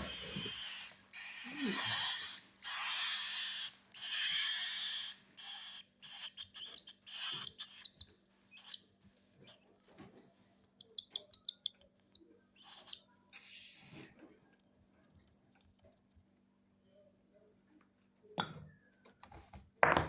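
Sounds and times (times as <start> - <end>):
bird chicks hissing begging calls: 0.0 - 6.4
chicks clicking and squeaking: 0.0 - 8.9, 10.7 - 14.2.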